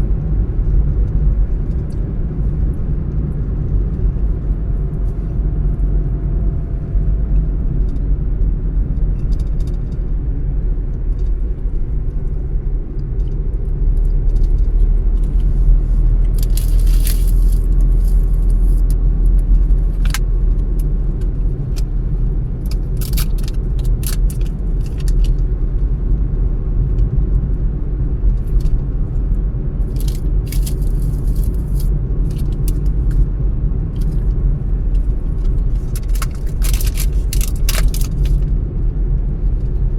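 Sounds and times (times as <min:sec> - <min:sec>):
car engine and tyres rumbling: 0:00.0 - 0:39.9
short rattles and clicks: 0:16.3 - 0:18.8, 0:29.9 - 0:33.2, 0:35.0 - 0:38.5.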